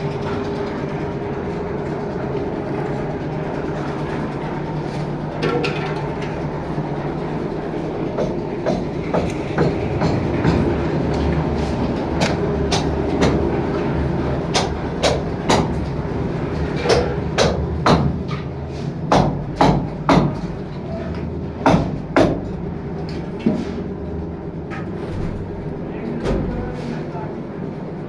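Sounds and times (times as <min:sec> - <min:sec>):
sharp knocks: 0:08.2 - 0:10.8, 0:19.1 - 0:20.5.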